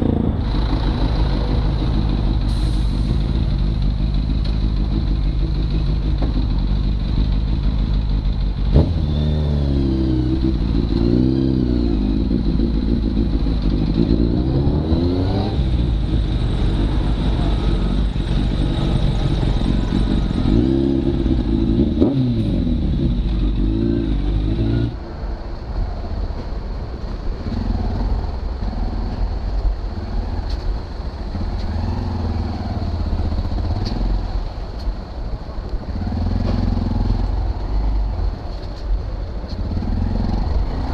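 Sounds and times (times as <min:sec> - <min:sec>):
motorcycle engine revving: 0:03.2 - 0:25.0.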